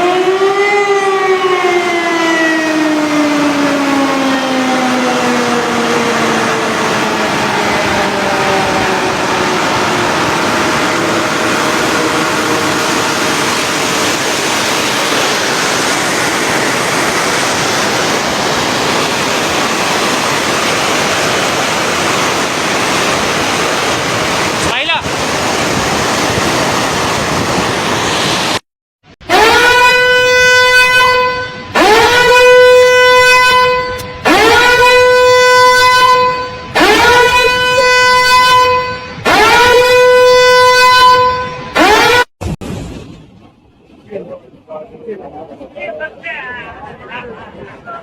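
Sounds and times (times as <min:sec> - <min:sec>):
warning siren winding down: 0:00.0 - 0:28.6, 0:29.2 - 0:42.3
water rushing through spillway: 0:02.0 - 0:28.6.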